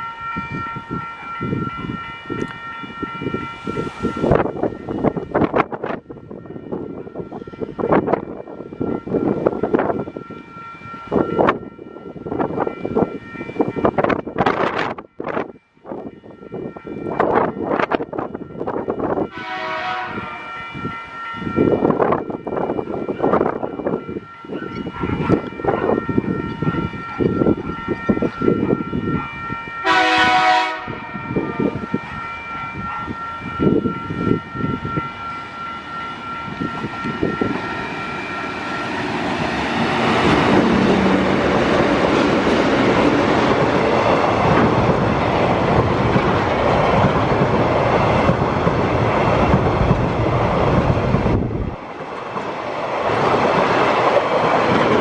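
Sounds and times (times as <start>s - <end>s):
locomotive whine: 0.0s - 55.0s
train horn blast: 19.3s - 20.6s, 29.8s - 31.4s.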